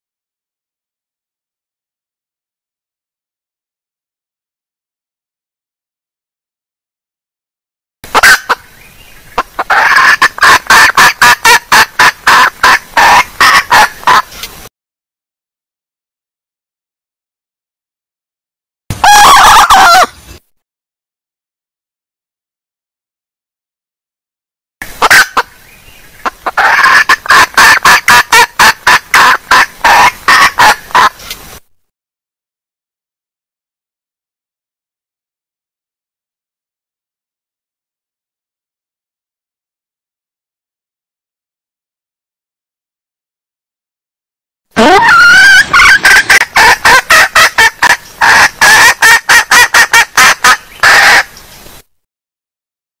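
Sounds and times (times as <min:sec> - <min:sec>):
hen clucking: 0:08.1 - 0:14.3, 0:19.0 - 0:20.1, 0:25.0 - 0:25.5, 0:26.1 - 0:31.2, 0:44.8 - 0:51.3.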